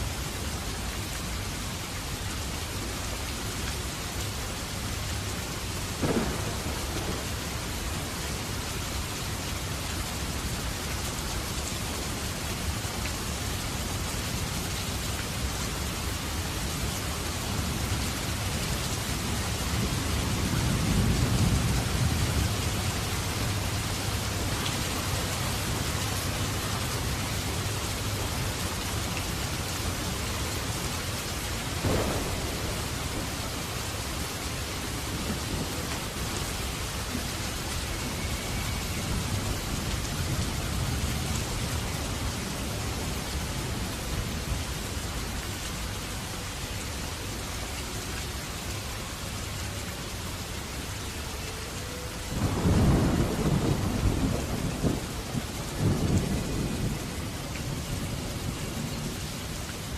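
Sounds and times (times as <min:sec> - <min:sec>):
steady rain: 0:00.0 - 0:59.9
thunder rumbling: 0:06.0 - 0:08.5, 0:31.7 - 0:43.8, 0:52.4 - 0:58.9.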